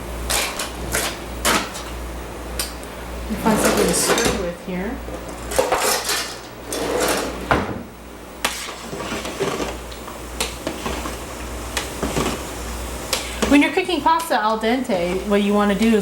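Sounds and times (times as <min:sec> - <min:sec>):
kitchen utensils clattering: 0:03.3 - 0:04.6, 0:05.2 - 0:07.8, 0:08.4 - 0:09.8.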